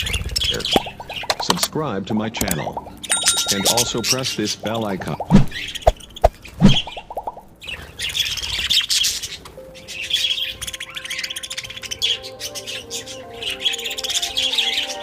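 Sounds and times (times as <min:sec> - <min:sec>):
budgerigars chattering and chirping: 0:00.0 - 0:01.7, 0:06.9 - 0:15.0
soft music with held notes: 0:00.4 - 0:15.0.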